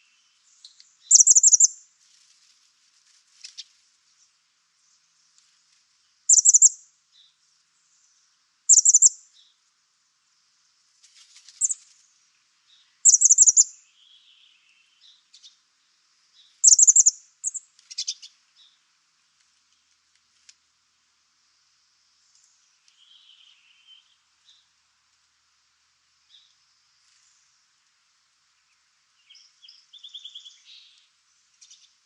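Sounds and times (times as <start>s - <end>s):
small animal chirping trills: 0.6s - 1.8s, 6.3s - 6.8s, 8.7s - 9.2s, 11.6s - 11.9s, 13.0s - 13.8s, 16.6s - 18.3s.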